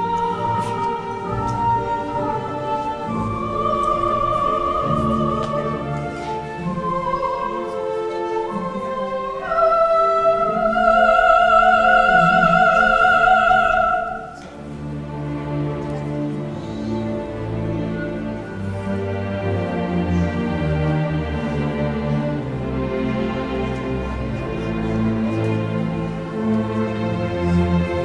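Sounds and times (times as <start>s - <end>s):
soprano singing wordlessly: 0.0s - 14.7s
orchestral accompaniment: 0.0s - 28.0s.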